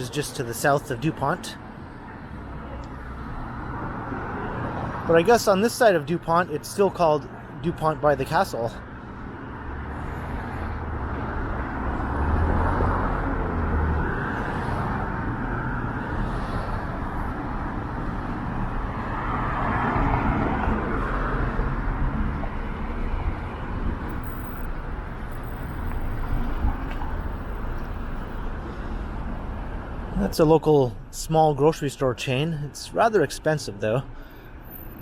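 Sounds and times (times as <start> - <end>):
cars passing: 0.0 - 35.0
vehicle passing: 9.5 - 30.4.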